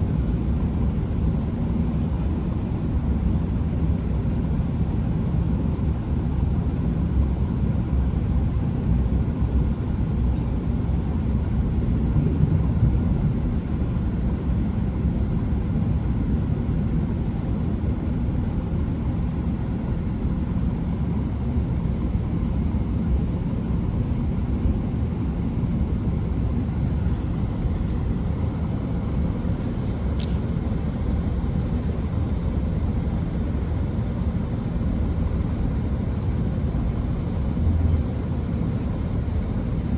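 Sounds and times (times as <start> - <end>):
train rumble inside carriage: 0.0 - 39.9
short click: 30.2 - 30.4.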